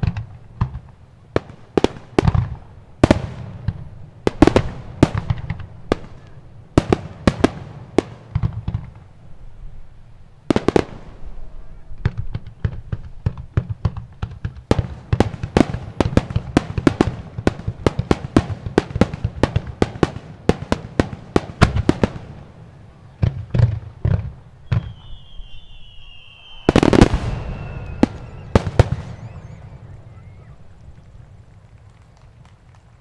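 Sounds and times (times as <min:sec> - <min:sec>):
fireworks bangs: 0:00.0 - 0:09.2, 0:10.4 - 0:33.0
high whistle: 0:24.6 - 0:31.1.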